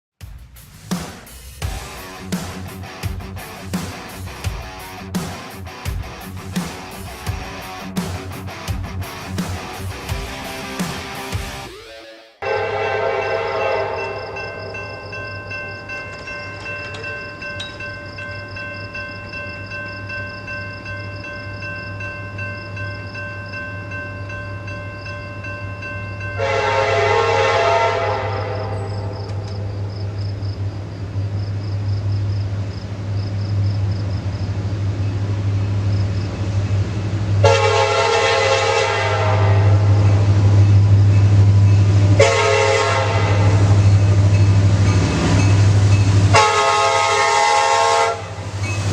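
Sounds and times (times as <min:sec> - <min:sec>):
locomotive horn blasts: 0:12.4 - 0:14.7, 0:26.4 - 0:29.9, 0:37.4 - 0:40.4, 0:42.1 - 0:43.8, 0:46.3 - 0:48.4.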